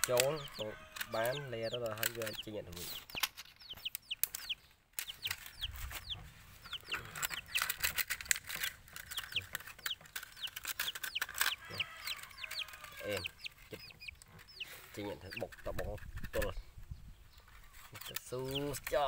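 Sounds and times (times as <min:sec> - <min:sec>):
small birds peeping: 0:00.0 - 0:19.0
plastic crackling: 0:01.8 - 0:14.5.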